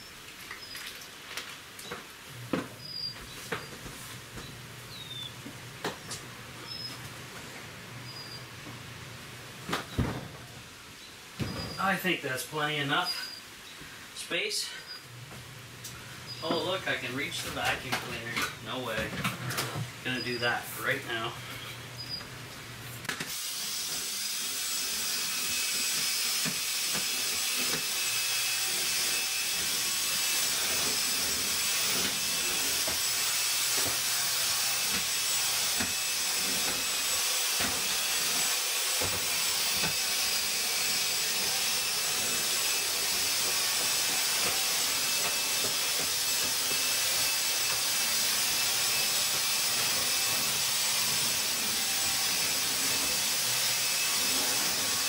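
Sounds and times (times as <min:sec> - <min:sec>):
vacuum cleaner running: 0:23.1 - 0:55.0.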